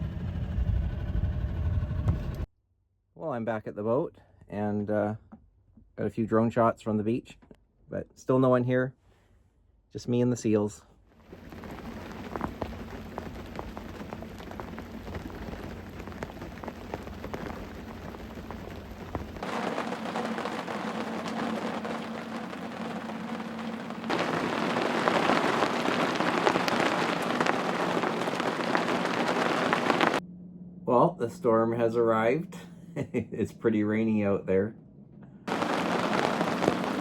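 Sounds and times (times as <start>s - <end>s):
steady rain falling: 11.3s - 30.2s, 35.5s - 37.0s.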